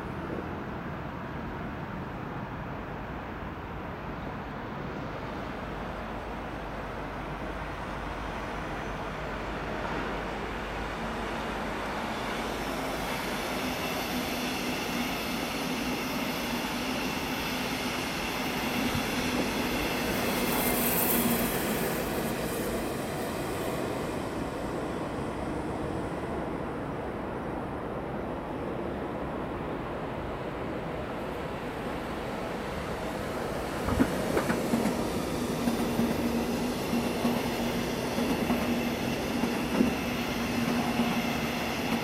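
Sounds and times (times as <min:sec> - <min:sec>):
train wheels rumbling: 0:31.6 - 0:42.0.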